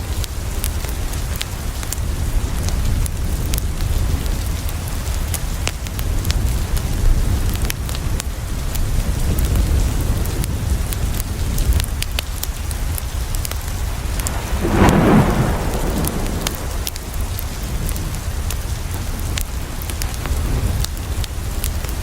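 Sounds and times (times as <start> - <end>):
rain on a window: 0.0 - 22.0
sharp ticks and crackles: 0.1 - 22.0
rushing burst: 13.7 - 17.9
deep low rumble: 13.8 - 18.1.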